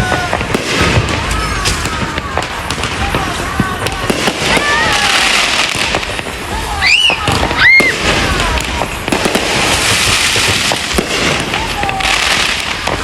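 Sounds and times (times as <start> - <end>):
fireworks crackling and popping: 0.0 - 13.0
firework whistles: 4.1 - 13.0.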